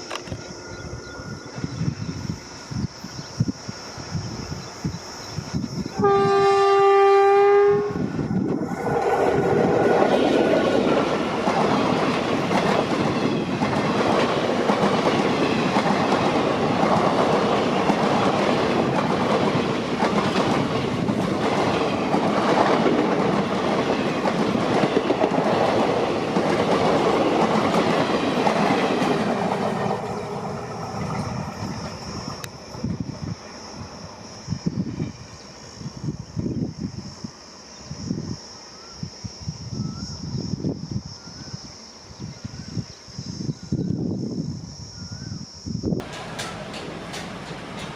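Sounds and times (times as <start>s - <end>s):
train wheels rumbling on rails: 0.0s - 37.1s, 45.9s - 47.9s
locomotive horn chord: 6.0s - 8.0s.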